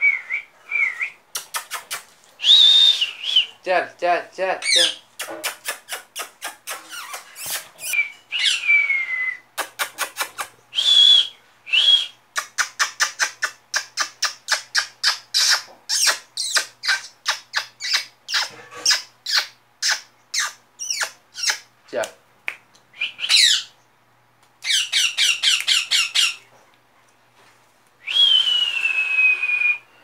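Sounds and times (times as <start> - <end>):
falling whistle: 2.4 - 3.5, 8.0 - 9.4, 28.0 - 30.0
baby parrot chirping: 4.6 - 8.6, 12.5 - 21.7, 23.1 - 23.8, 24.6 - 26.4.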